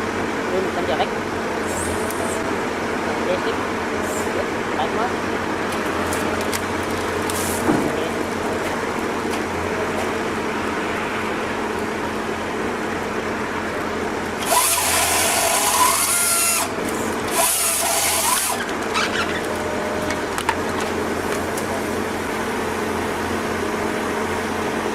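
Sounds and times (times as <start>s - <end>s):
saw engine running: 0.7s - 24.9s
motorised saw cutting wood: 14.2s - 22.6s.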